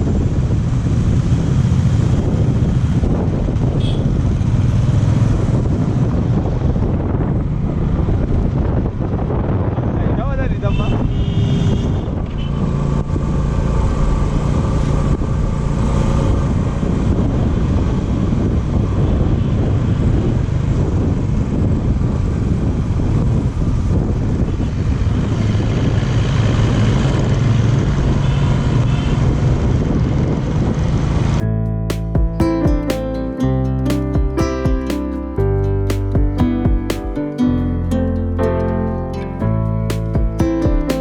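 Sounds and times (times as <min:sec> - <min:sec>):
wind rushing over microphone: 0:00.0 - 0:31.6.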